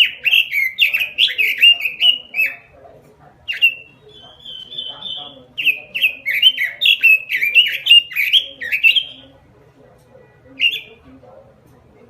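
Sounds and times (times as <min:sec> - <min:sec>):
bird whistling song: 0:00.0 - 0:02.7, 0:03.5 - 0:09.3, 0:10.6 - 0:11.0.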